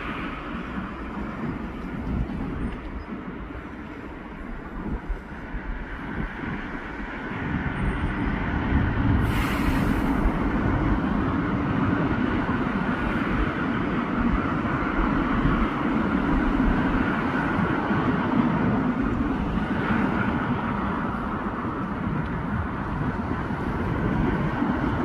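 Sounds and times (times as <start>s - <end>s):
rumble of passing vehicles: 0.0s - 25.0s
brief hiss: 9.2s - 10.3s.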